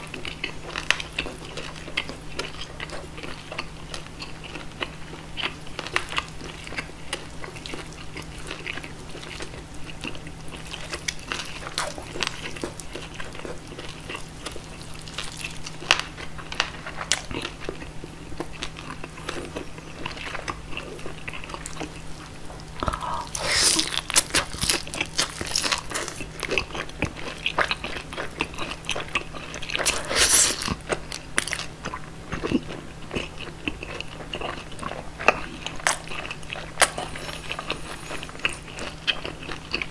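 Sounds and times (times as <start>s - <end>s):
person chewing wet mouth sounds: 0.0s - 39.9s
steady low hum: 0.0s - 39.9s
crunchy biting of roasted skin: 7.6s - 17.5s, 18.5s - 31.7s, 33.2s - 39.9s.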